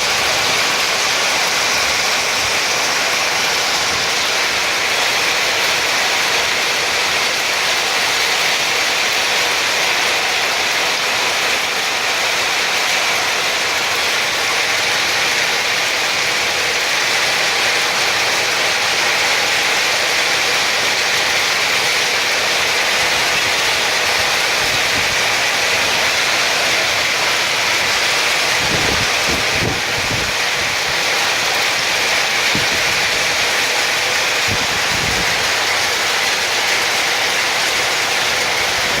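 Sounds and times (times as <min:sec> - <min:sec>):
heavy hail clattering: 0:00.0 - 0:39.0.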